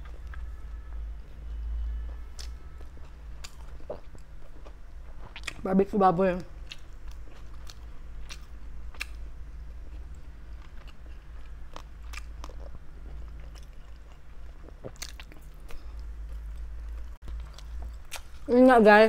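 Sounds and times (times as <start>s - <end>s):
steady low hum: 0.0s - 19.0s
chewing and mouth clicks: 2.1s - 5.6s, 6.6s - 9.2s, 9.9s - 18.5s.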